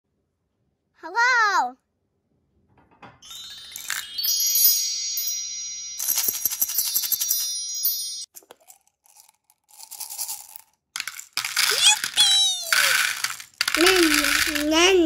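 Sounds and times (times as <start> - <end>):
high bell-like chimes: 3.2 - 8.3
quick glittery clicks: 11.6 - 14.9.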